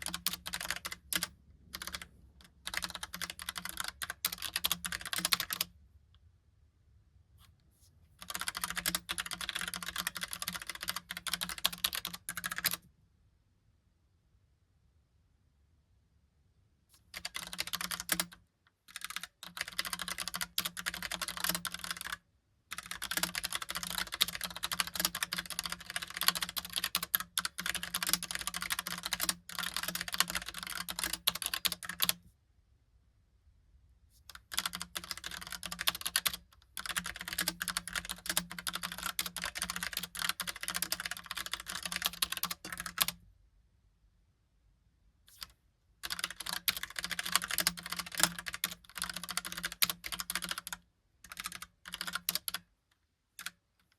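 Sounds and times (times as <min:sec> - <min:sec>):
mechanical keyboard typing: 0:00.0 - 0:05.7, 0:08.2 - 0:12.8, 0:17.1 - 0:32.2, 0:34.3 - 0:43.2, 0:45.3 - 0:52.7, 0:53.4 - 0:53.9.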